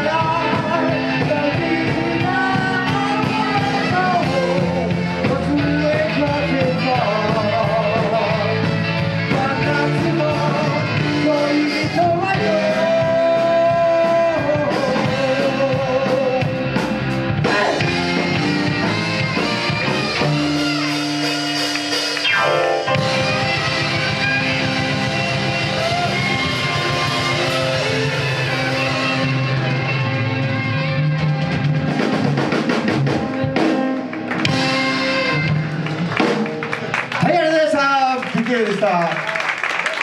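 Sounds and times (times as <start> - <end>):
lead vocal singing: 0.0 - 20.9
bass: 0.0 - 40.0
drums: 0.0 - 40.0
guitar: 0.0 - 40.0.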